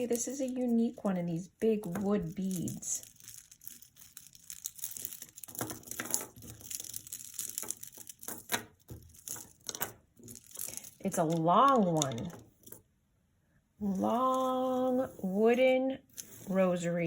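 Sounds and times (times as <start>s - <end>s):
wooden beads clicking: 0.0s - 12.8s
crinkling and rustling: 0.0s - 12.9s.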